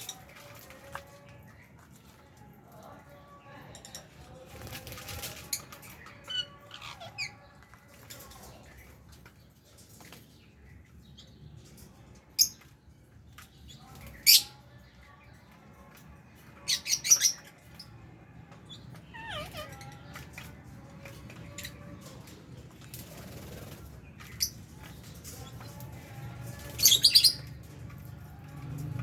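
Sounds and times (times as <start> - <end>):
parrots calling and chirping: 3.6 - 10.5, 13.5 - 14.6, 16.4 - 28.2.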